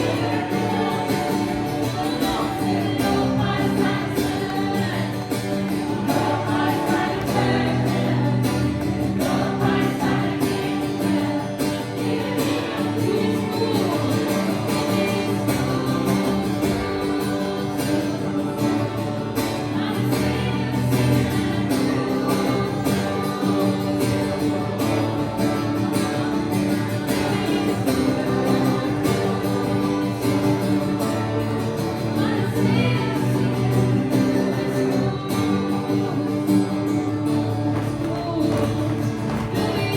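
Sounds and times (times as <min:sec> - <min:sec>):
congregation singing: 0:00.0 - 0:39.9
strummed acoustic guitar: 0:00.0 - 0:39.9.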